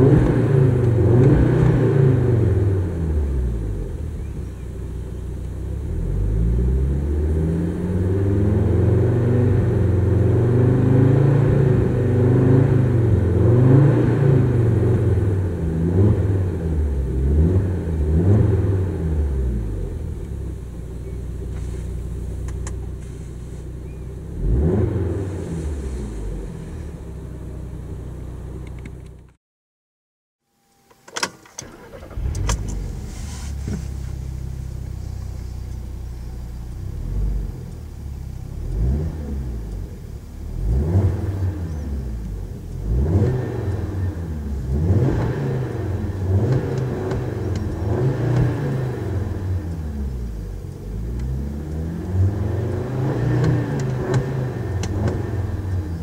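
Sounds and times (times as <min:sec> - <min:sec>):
car engine revving: 0:00.0 - 0:04.6, 0:05.6 - 0:28.8, 0:31.6 - 0:56.0
car engine idling: 0:02.2 - 0:06.8, 0:18.8 - 0:29.3, 0:31.4 - 0:43.1, 0:45.7 - 0:51.9.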